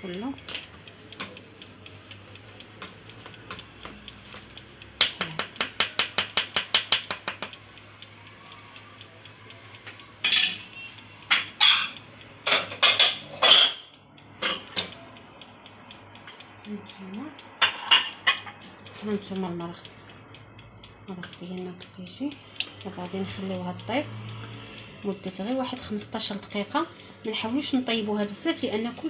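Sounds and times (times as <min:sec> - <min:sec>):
tapping clicks: 0:00.1 - 0:29.0
utensil knocking on strainer and pot: 0:05.0 - 0:07.5.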